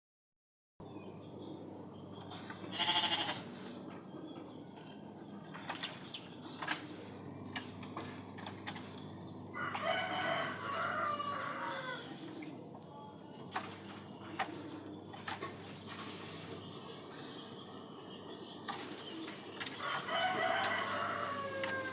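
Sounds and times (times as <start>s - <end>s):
rooster crowing: 9.5s - 12.3s, 19.8s - 21.9s.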